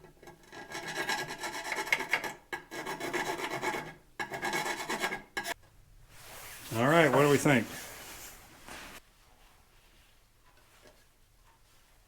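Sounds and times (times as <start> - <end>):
hand file rasping on metal: 0.3 - 5.6.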